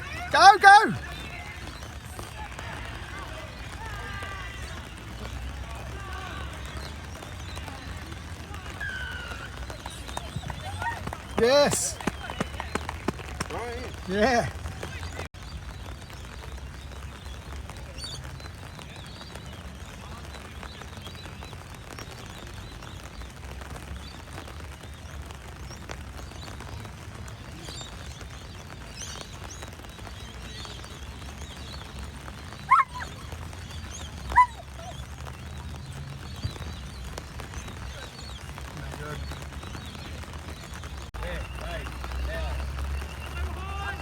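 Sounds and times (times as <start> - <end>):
dog barking: 32.7 - 33.2, 34.3 - 35.0.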